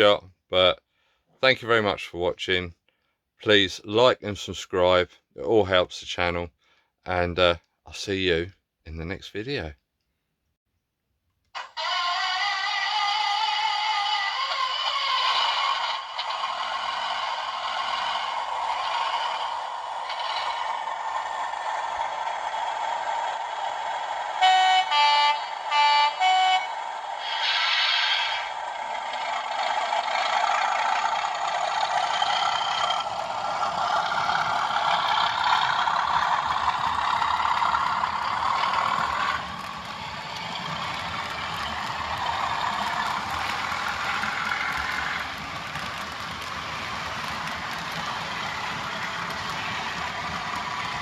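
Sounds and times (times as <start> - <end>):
model diesel engine sound: 14.8 - 51.0.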